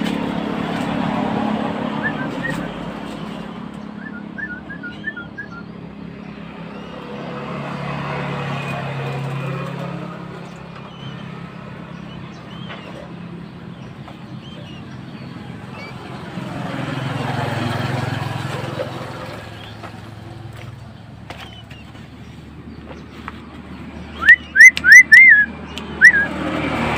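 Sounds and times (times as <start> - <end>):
passing traffic engine hum: 0.0 - 26.9
small bird chirps: 10.4 - 16.3.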